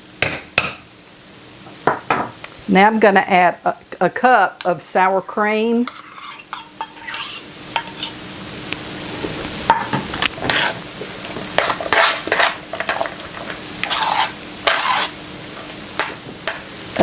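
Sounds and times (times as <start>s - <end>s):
spoon scraping in a bowl: 5.8s - 8.2s, 10.4s - 10.8s, 11.6s - 13.1s, 13.8s - 15.8s.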